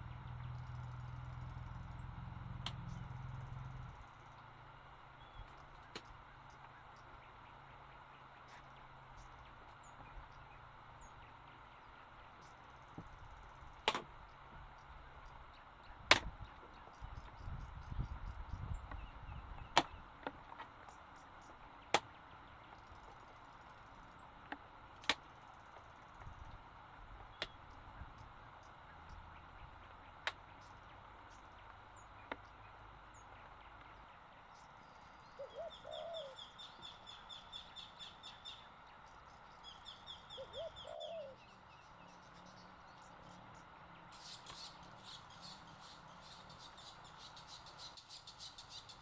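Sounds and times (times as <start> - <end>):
rapid high bird chirps: 27.3 - 49.0
low warbling bird call: 35.3 - 38.8, 39.6 - 42.7.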